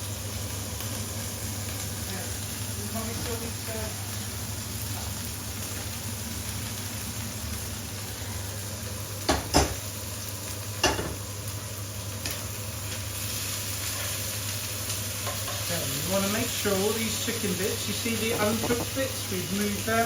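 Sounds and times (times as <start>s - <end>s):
curry sizzling in a pan: 0.0s - 20.0s
utensil knocking on pan: 9.3s - 9.8s, 18.3s - 19.0s.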